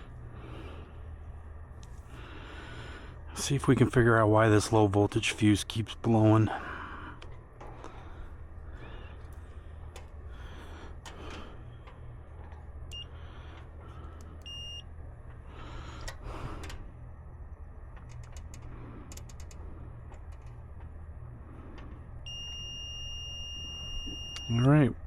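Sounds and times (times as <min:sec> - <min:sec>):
multimeter continuity beeps: 0:12.8 - 0:13.2, 0:14.2 - 0:15.0, 0:22.2 - 0:25.0.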